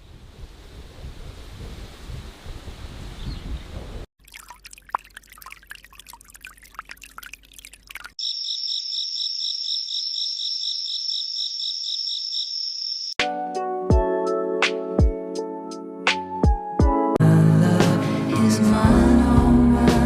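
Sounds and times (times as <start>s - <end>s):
pulsing insect-like trill: 8.2s - 13.2s.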